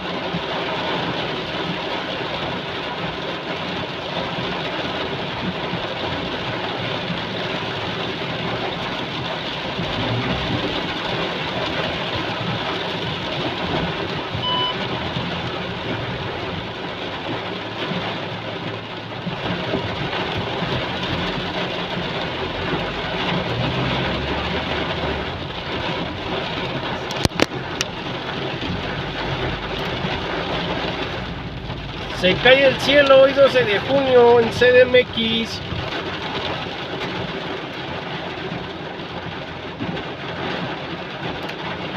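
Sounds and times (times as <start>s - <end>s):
heavy rain pouring: 0.0s - 41.9s
short electronic beep: 14.4s - 14.8s.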